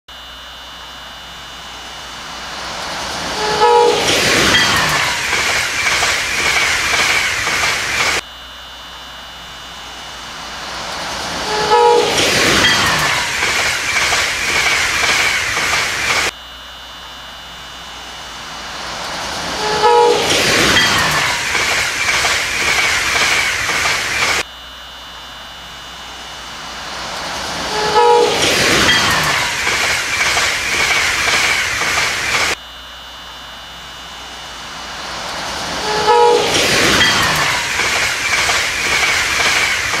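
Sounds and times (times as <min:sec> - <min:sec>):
train passing: 0:00.9 - 0:08.2, 0:09.4 - 0:16.3, 0:17.5 - 0:24.4, 0:25.6 - 0:32.6, 0:33.8 - 0:40.0
wheels clacking over rail joints: 0:02.8 - 0:08.2, 0:10.9 - 0:16.3, 0:19.4 - 0:24.4, 0:27.5 - 0:32.6, 0:35.4 - 0:40.0
train horn blast: 0:03.3 - 0:04.4, 0:11.4 - 0:13.3, 0:19.5 - 0:20.4, 0:27.6 - 0:28.5, 0:35.8 - 0:36.6.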